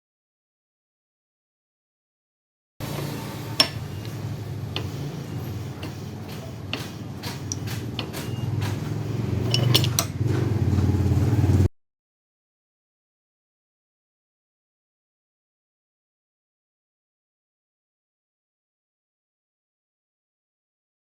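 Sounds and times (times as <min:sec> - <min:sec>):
low motor hum: 0:02.8 - 0:11.7
metallic clicks and taps: 0:03.6 - 0:04.2, 0:05.8 - 0:10.2.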